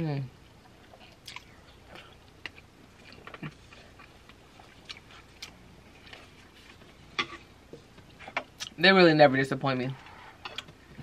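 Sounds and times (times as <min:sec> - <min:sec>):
chewing food: 0:00.6 - 0:07.0
soft mouth clicks and smacks: 0:00.9 - 0:05.6.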